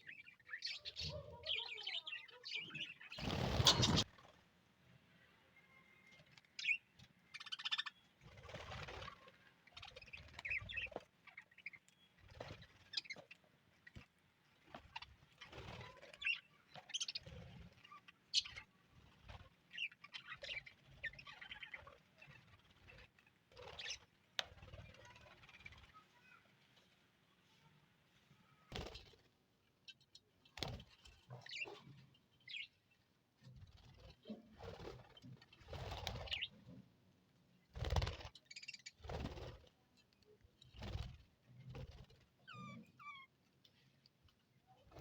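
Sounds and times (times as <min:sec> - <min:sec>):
budgerigars chirping and chattering: 0:00.0 - 0:04.1, 0:06.6 - 0:13.9, 0:14.9 - 0:24.1, 0:31.2 - 0:32.8, 0:35.1 - 0:36.7, 0:42.5 - 0:43.2.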